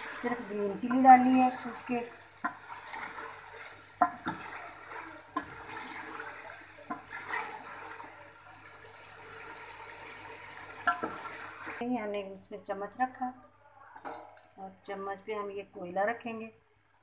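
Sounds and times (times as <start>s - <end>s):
meat sizzling in a metal pot: 0.0s - 11.8s.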